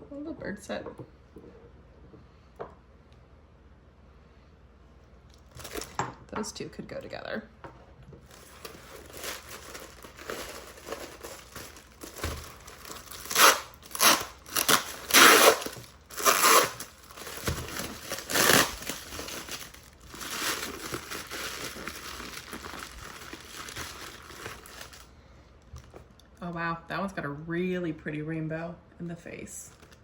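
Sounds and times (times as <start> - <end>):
packing wrap crumpling and tearing: 5.4 - 6.0, 8.2 - 25.2, 29.7 - 30.0.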